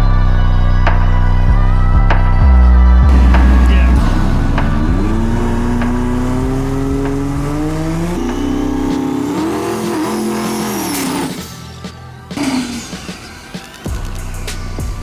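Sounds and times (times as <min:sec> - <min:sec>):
music: 0:00.0 - 0:15.0
dragster engine running hard: 0:03.1 - 0:11.5.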